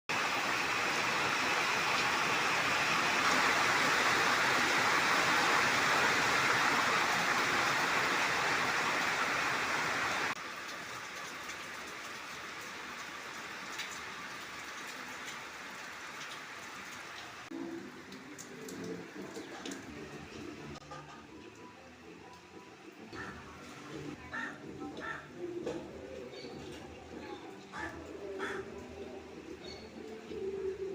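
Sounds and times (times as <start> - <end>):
rain falling: 0.1 - 30.9
water drips: 10.3 - 23.3.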